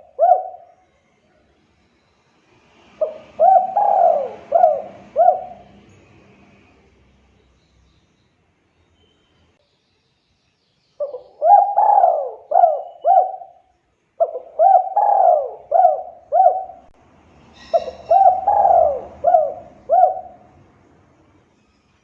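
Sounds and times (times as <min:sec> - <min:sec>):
dove cooing: 0:00.0 - 0:01.1, 0:03.0 - 0:05.9, 0:11.0 - 0:13.6, 0:14.2 - 0:16.9, 0:17.6 - 0:20.6.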